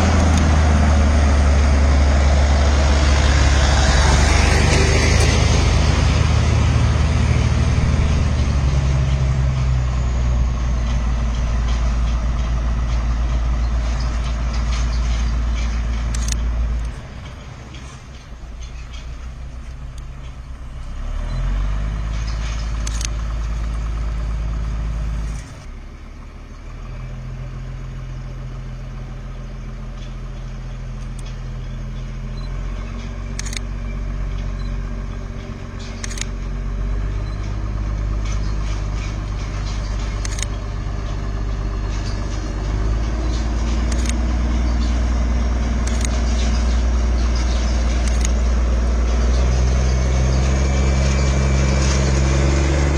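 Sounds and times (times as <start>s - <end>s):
vehicle engine running: 0.0s - 52.9s
sharp clicks: 0.1s - 0.6s, 10.7s - 20.6s, 21.2s - 25.7s, 30.0s - 49.2s.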